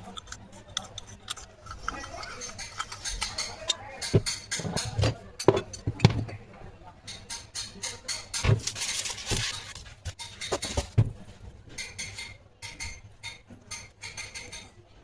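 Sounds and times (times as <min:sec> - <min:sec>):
metal parts clinking: 0:00.0 - 0:05.8
metal tools knocking: 0:00.0 - 0:06.3, 0:07.0 - 0:11.0, 0:11.7 - 0:14.8.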